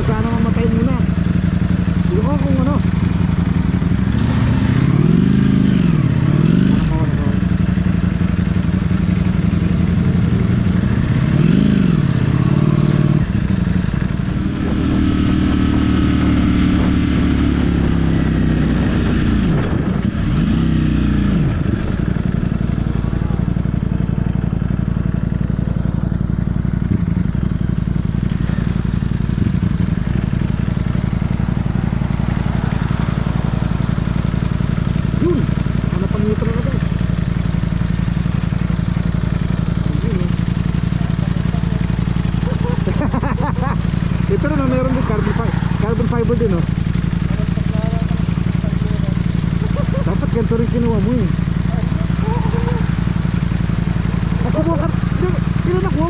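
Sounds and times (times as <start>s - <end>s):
motorcycle engine: 0.0s - 56.0s
riding noise: 40.6s - 50.2s.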